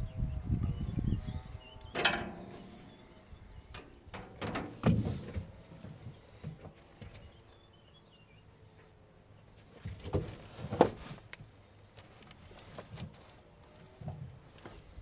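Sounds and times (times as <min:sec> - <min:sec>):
metal clanks from tools: 0:02.0 - 0:03.0.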